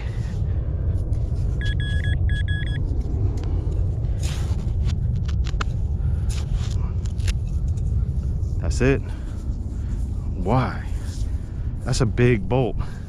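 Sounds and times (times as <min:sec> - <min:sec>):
steady low rumble: 0:00.0 - 0:13.0
metal detector beeping: 0:01.6 - 0:02.8.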